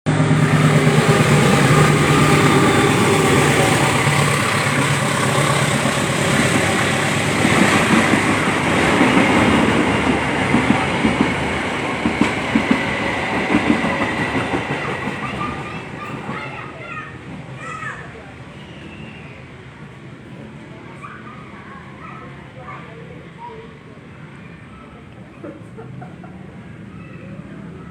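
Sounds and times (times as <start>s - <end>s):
train rumbling past: 0.1s - 27.9s
train wheels clacking over rail joints: 0.4s - 16.6s.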